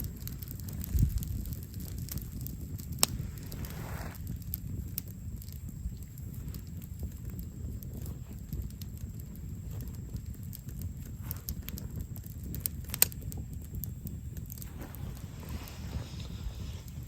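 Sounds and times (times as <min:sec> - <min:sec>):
campfire crackling and popping: 0:00.0 - 0:17.0
low steady rumble: 0:00.0 - 0:17.0.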